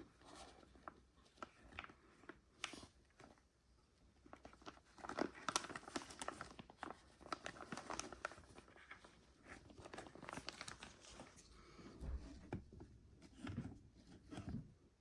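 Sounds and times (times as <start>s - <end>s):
packaging crinkling and rustling: 4.2s - 12.6s.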